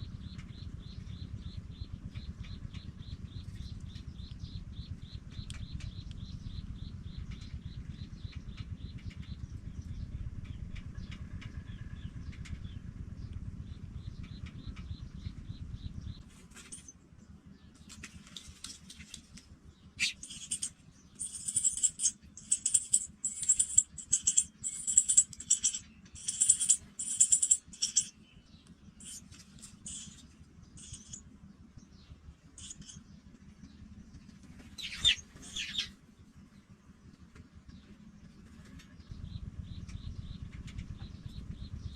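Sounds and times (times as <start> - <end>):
nestlings chirping: 20.0 - 31.3, 32.6 - 33.0, 34.6 - 36.0.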